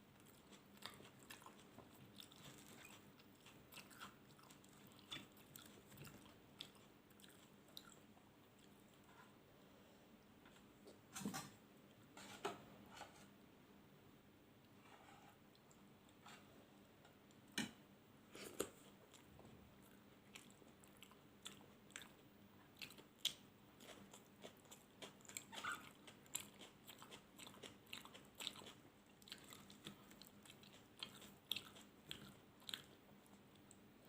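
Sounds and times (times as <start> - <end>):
chewing with small clicks: 0.1 - 9.1, 18.4 - 34.0.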